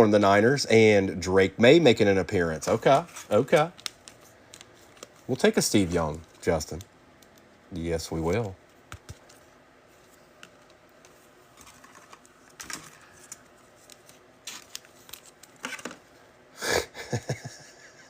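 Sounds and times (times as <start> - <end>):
packaging rustling: 8.3 - 16.0.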